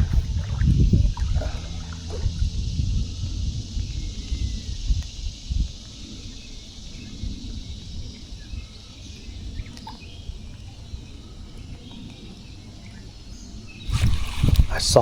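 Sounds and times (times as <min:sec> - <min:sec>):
steady low rumble: 0:00.0 - 0:09.7
constant high hiss: 0:00.0 - 0:15.0
faint bird chirps: 0:00.0 - 0:15.0.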